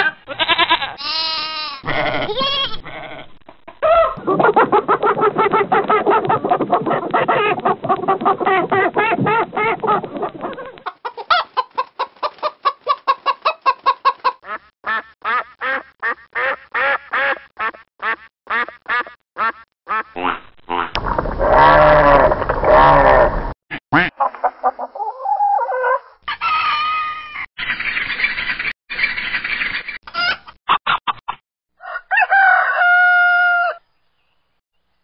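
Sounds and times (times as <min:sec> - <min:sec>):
chicken clucking: 0:03.4 - 0:17.7, 0:24.2 - 0:32.6
duck quacking: 0:12.9 - 0:21.0, 0:23.9 - 0:24.8.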